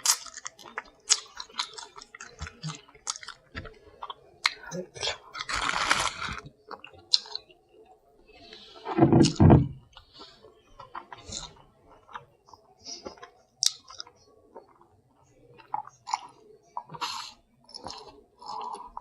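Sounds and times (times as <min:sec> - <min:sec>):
chewing: 0:00.0 - 0:19.0.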